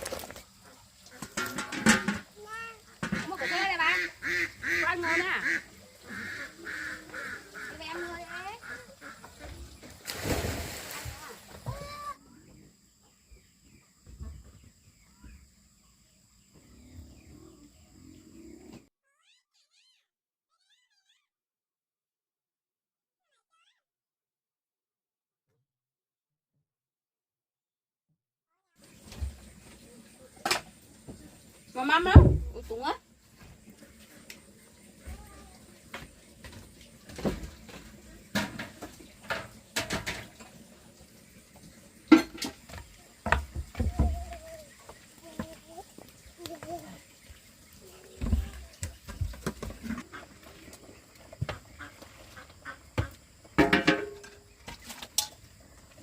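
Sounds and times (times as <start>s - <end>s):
dishes and utensils clattering: 1.2s - 2.4s, 37.1s - 40.6s, 42.1s - 43.6s, 53.6s - 55.4s.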